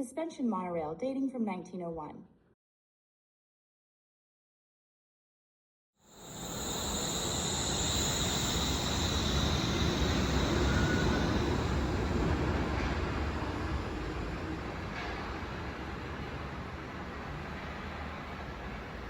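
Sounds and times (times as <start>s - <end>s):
high whine: 6.0s - 14.8s
suspension railway train rumble: 6.2s - 19.0s.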